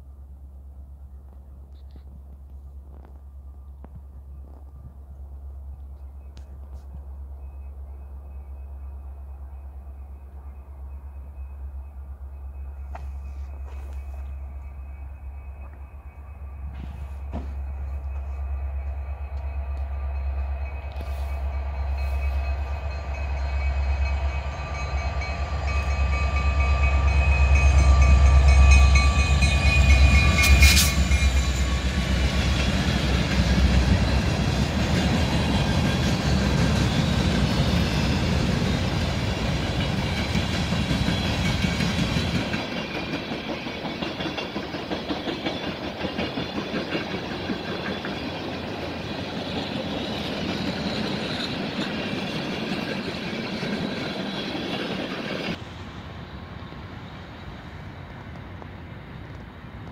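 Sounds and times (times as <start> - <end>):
diesel locomotive engine drone: 0.0 - 59.9.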